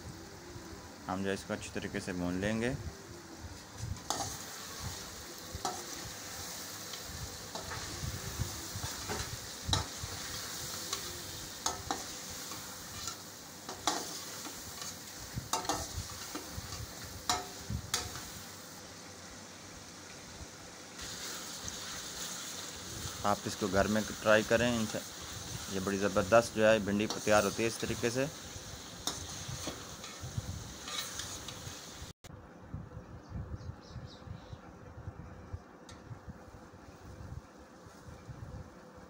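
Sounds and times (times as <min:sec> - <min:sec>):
food sizzling in hot oil: 0:00.0 - 0:32.2
metal spoon scraping a pan: 0:04.0 - 0:05.0, 0:05.6 - 0:06.1, 0:06.8 - 0:18.3, 0:26.9 - 0:28.1, 0:29.0 - 0:31.7.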